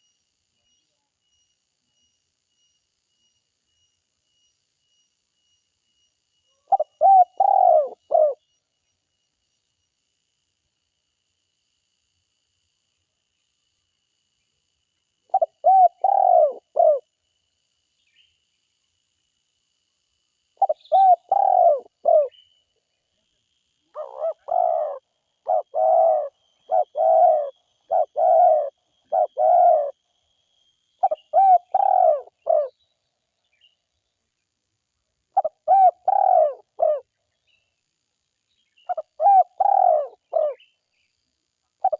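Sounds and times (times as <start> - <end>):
dove cooing: 6.6 - 8.4, 15.3 - 17.0, 20.6 - 22.3, 23.9 - 30.0, 31.0 - 32.7, 35.4 - 37.0, 38.9 - 40.6.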